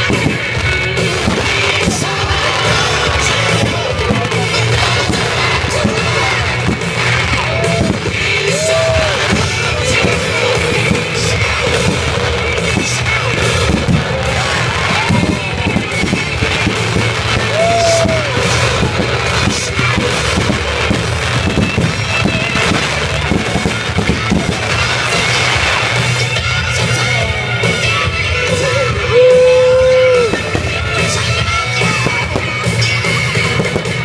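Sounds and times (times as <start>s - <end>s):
fireworks crackling and popping: 0.0s - 34.0s
loud music: 0.0s - 34.0s.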